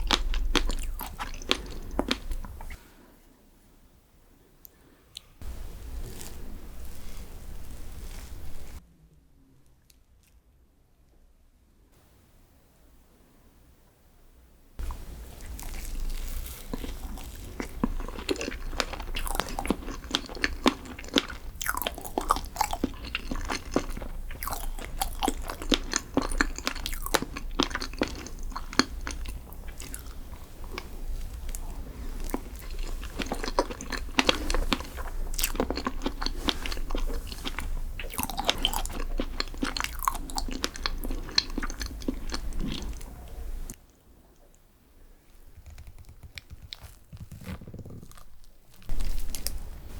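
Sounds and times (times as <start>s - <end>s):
crunching and chewing: 0.0s - 2.8s, 14.8s - 43.8s, 45.6s - 49.7s
steady low hum: 0.0s - 9.8s
small crackles and clicks: 45.5s - 49.6s.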